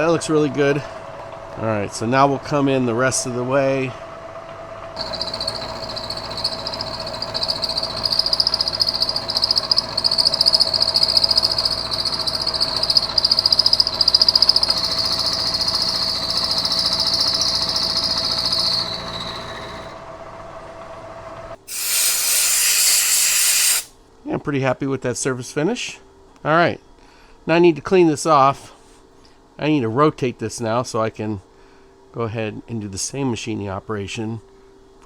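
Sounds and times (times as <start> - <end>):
milling machine cutting metal: 5.0 - 20.0, 21.7 - 23.9
milling spindle running: 5.0 - 20.0, 21.7 - 23.9
loud steady hiss: 21.6 - 23.9.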